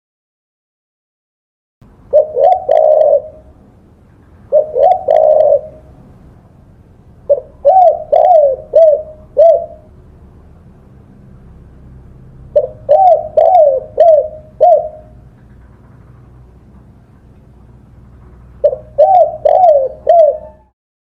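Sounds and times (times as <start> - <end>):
dove cooing: 2.1 - 3.6, 4.4 - 6.1, 7.3 - 9.9, 12.5 - 15.3, 18.5 - 20.8.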